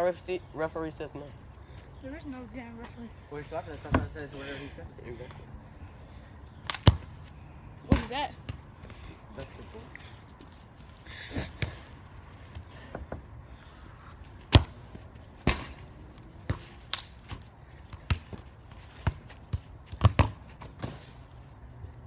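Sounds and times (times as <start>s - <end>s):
soccer ball bouncing and kicked: 3.8s - 4.2s, 6.6s - 9.2s, 14.3s - 21.4s.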